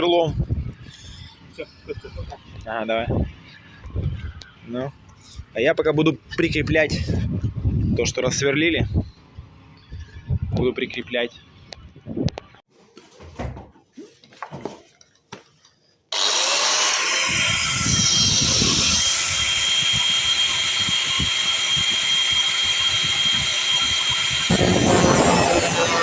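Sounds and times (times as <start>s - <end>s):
power drill boring into concrete: 16.1s - 26.0s.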